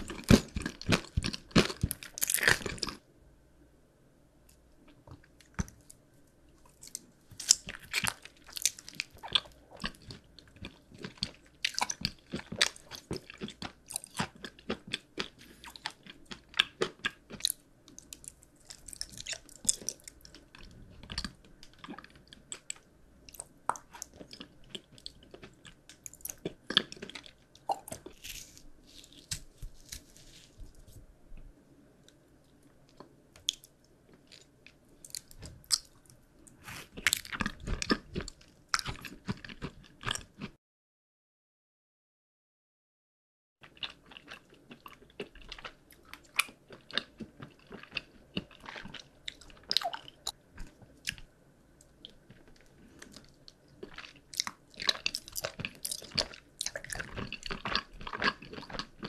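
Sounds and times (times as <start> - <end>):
crunchy candy being chewed: 0.0 - 3.0, 6.6 - 30.8, 32.9 - 40.5, 43.6 - 59.0.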